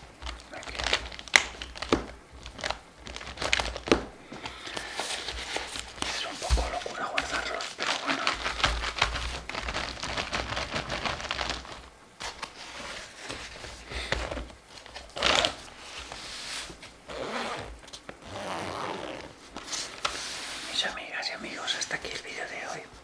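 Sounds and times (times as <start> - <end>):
scratching on paper: 0.0 - 16.9, 19.2 - 23.0.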